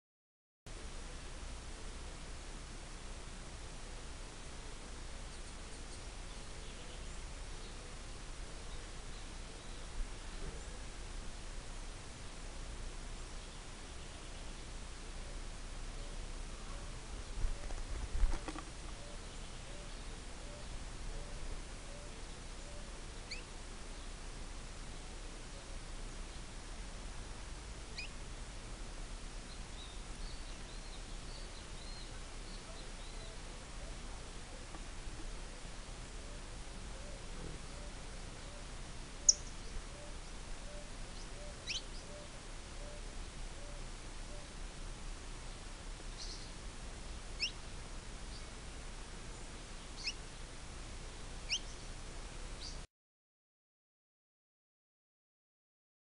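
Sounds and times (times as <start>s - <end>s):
low background rumble: 0.7s - 52.8s
steady background hiss: 0.7s - 52.9s
faint bird chirps: 5.2s - 10.9s, 13.3s - 17.8s, 18.9s - 24.2s, 27.9s - 28.2s, 29.4s - 34.8s, 36.2s - 44.6s, 46.1s - 46.6s, 47.4s - 47.6s, 49.8s - 50.2s, 51.4s - 51.9s.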